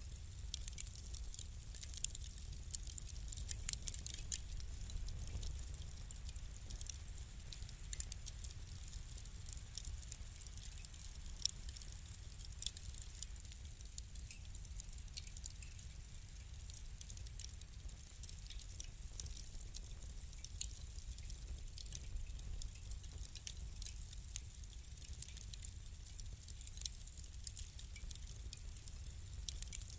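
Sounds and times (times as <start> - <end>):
wood fire crackling: 0.0 - 29.9
flames rumbling: 0.1 - 7.2.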